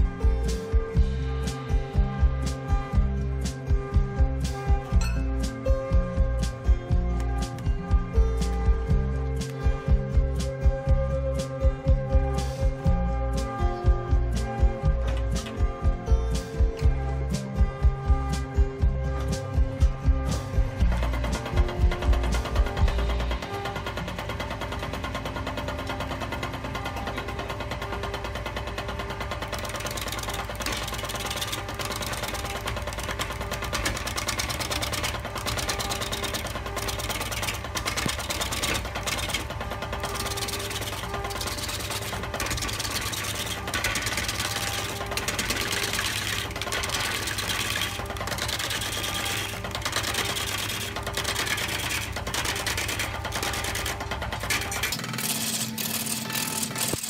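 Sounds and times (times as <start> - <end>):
wood lathe running with clatter: 0.0 - 57.0
turning tool cutting wood: 18.3 - 57.0.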